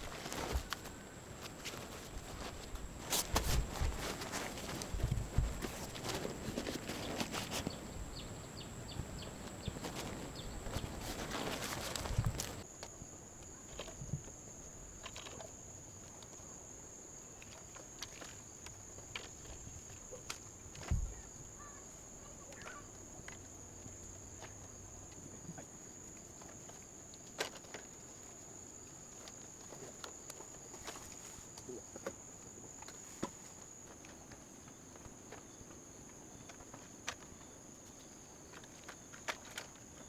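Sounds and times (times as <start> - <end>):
crickets buzzing: 0.0 - 13.2
dull thump: 3.0 - 6.4.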